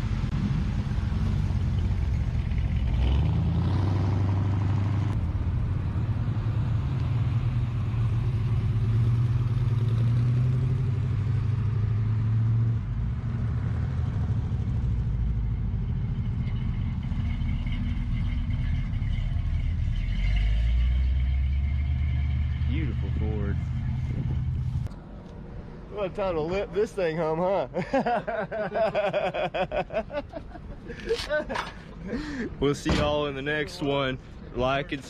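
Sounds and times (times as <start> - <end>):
car engine rumbling: 0.0 - 35.0.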